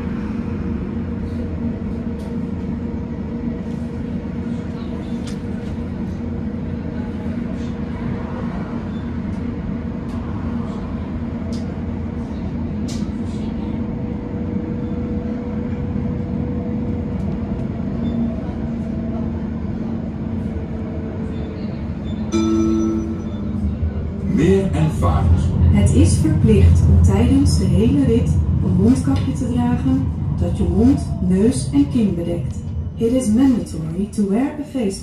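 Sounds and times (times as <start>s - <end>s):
tram wheels rumbling on rail: 0.0s - 35.0s
short chime: 22.3s - 23.5s.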